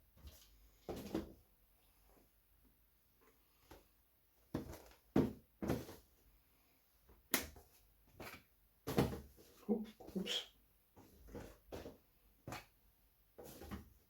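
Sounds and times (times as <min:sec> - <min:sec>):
items being handled and set down: 0:04.5 - 0:06.2, 0:13.4 - 0:14.0.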